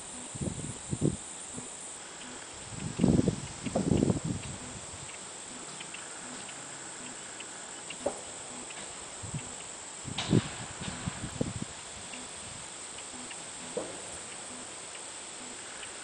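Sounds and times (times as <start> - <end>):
high-pitched insect chorus: 0.0 - 16.0
low thumps: 2.7 - 5.1.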